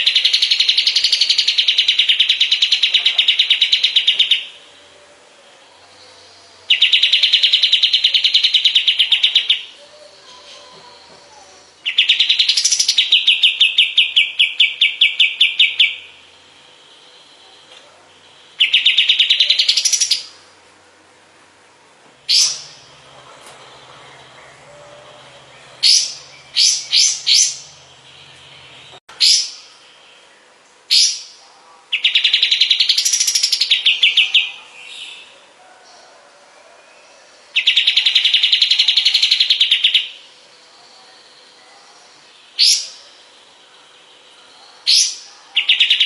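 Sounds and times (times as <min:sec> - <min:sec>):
songbird trilling: 0:00.0 - 0:04.8, 0:05.9 - 0:20.4, 0:22.2 - 0:30.2, 0:37.5 - 0:46.0.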